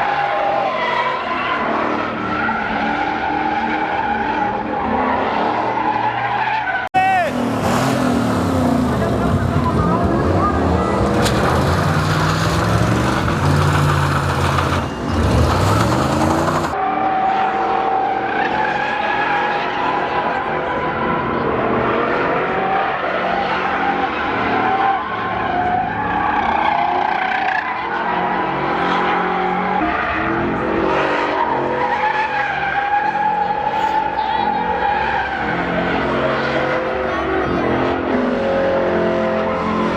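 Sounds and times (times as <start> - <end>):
truck engine revving: 7.0 - 16.8
tyres squealing: 7.0 - 16.8.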